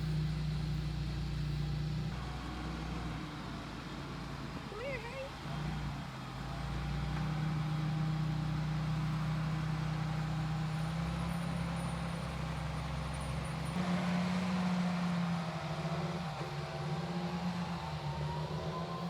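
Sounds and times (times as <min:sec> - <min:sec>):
tractor engine droning: 0:00.0 - 0:19.0.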